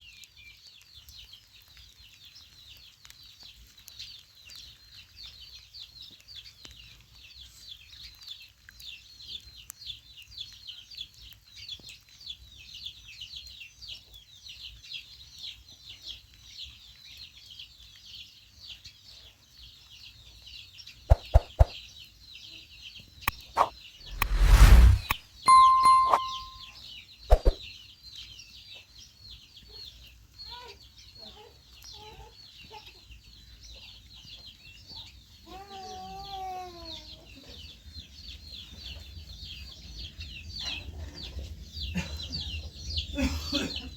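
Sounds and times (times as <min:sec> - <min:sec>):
small birds chirping: 0:00.1 - 0:24.2, 0:27.3 - 0:43.9
loud rushing burst: 0:23.6 - 0:25.2.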